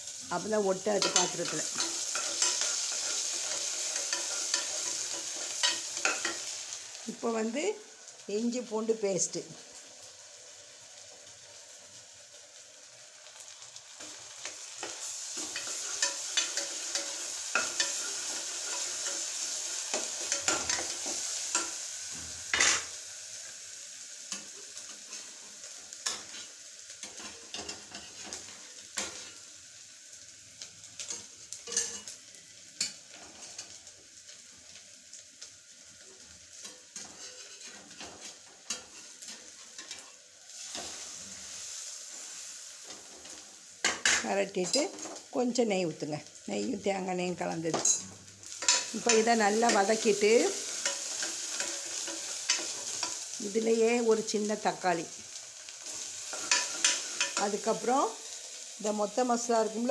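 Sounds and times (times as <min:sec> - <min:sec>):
food sizzling in a pan: 0:00.0 - 0:59.9
spatula scraping a pan: 0:01.0 - 0:06.5, 0:14.8 - 0:21.8, 0:36.5 - 0:41.2, 0:55.8 - 0:57.5.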